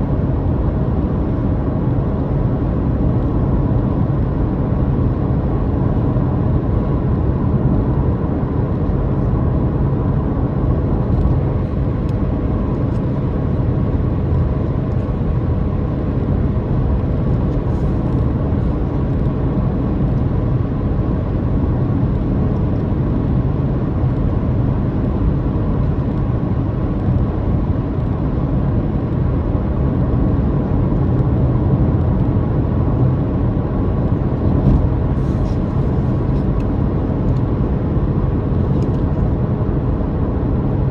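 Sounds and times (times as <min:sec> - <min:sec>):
road and tyre noise: 0:00.0 - 0:40.9.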